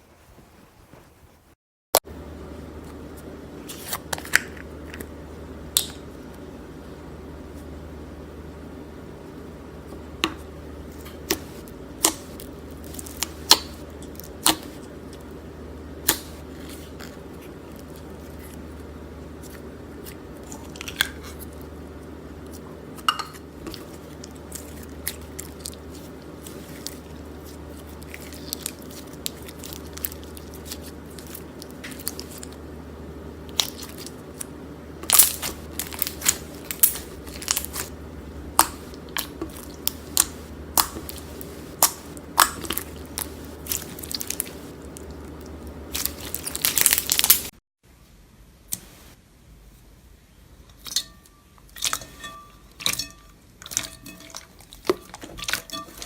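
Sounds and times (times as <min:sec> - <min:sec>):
slime popping and crackling: 0:33.5 - 0:47.5.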